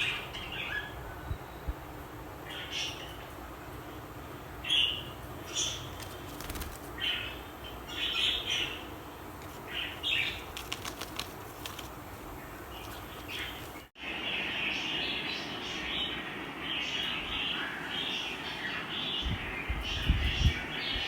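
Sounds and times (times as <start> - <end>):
budgerigars chirping: 12.6 - 13.9.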